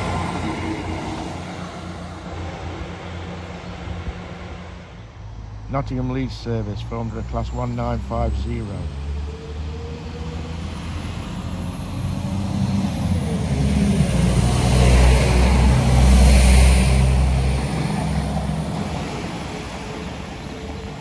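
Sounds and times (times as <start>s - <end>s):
diesel train passing: 0.0s - 21.0s.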